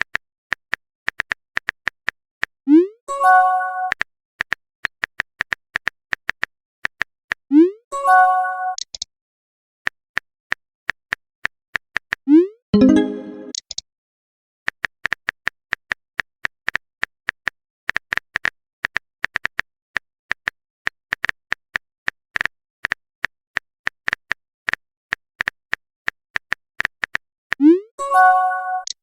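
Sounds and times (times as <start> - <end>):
keyboard typing clicks: 12.8 - 13.8.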